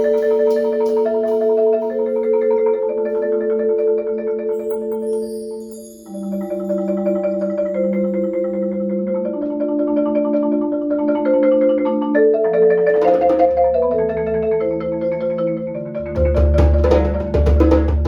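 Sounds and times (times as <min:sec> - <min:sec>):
sharp percussion strikes: 0:00.0 - 0:03.5, 0:12.9 - 0:13.9, 0:16.2 - 0:18.0
marimba playing chords: 0:00.0 - 0:18.0.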